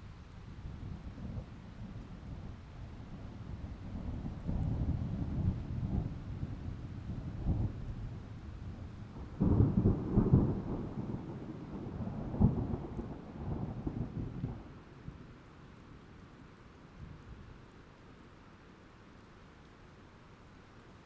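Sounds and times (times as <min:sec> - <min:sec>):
rain falling: 0:00.0 - 0:21.0
thunder rumbling: 0:09.2 - 0:14.7.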